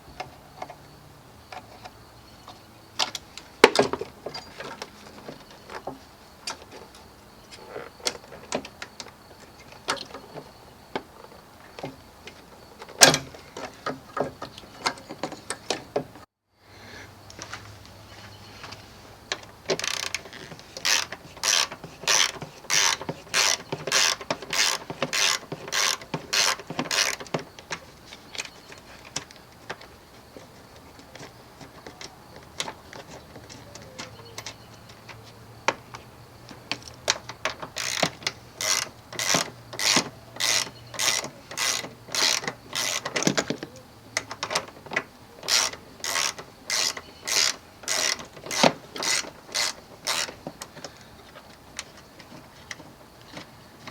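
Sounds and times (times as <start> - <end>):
ratchet wrench clicking: 19.8 - 27.3, 37.5 - 43.2, 45.4 - 50.4.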